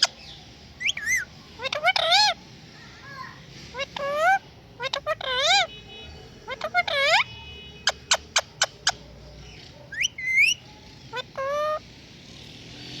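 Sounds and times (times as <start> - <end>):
parrot chirping: 0.0 - 2.5, 3.7 - 12.0
parrot whistling: 0.8 - 2.4, 9.9 - 11.8.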